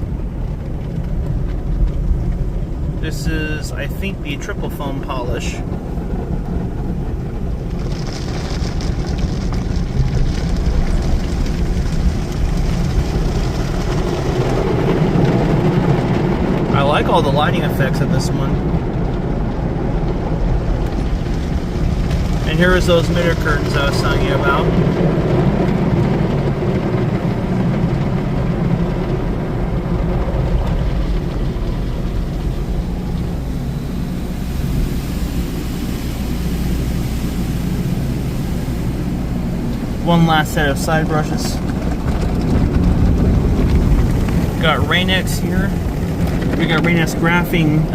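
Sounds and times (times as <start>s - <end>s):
car wash equipment rumbling: 0.0s - 47.9s
water spraying hiss: 31.4s - 41.7s.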